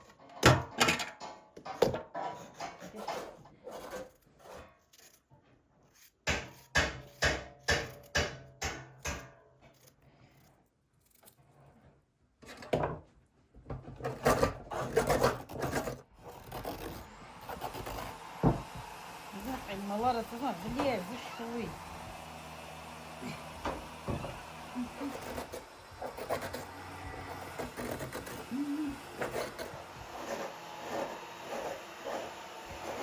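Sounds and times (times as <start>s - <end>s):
scraping and rubbing against wood: 13.7s - 33.0s
sharp wooden knocks: 18.4s - 19.0s.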